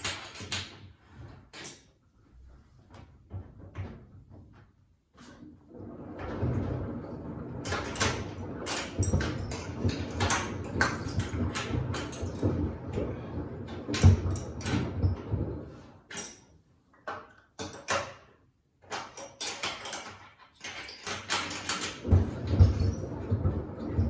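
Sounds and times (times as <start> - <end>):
sneakers thudding in washing machine: 22.0 - 24.0.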